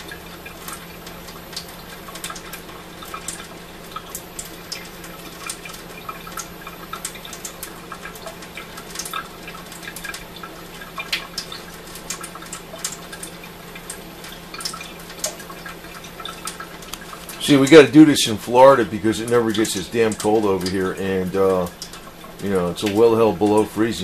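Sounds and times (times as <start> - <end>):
tap running in a thin stream: 0.0 - 24.0
water drips: 0.0 - 24.0.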